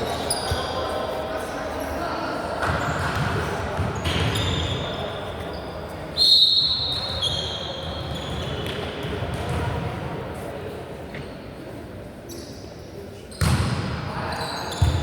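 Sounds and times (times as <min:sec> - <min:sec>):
murmur of voices: 0:00.0 - 0:15.0.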